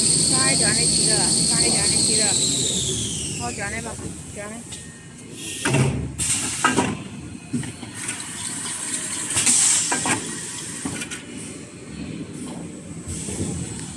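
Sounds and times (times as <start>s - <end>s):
paper rewinding machine hissing: 0.0s - 4.0s.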